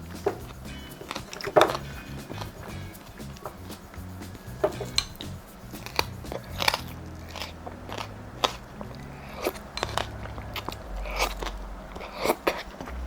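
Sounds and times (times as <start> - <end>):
wet mouth clicks and chewing: 0.0 - 13.0.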